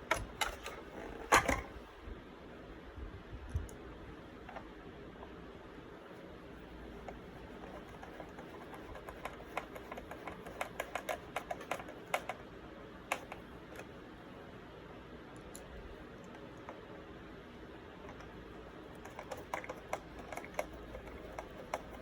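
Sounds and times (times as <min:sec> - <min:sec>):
screwdriver clicks and taps: 0:13.1 - 0:13.9.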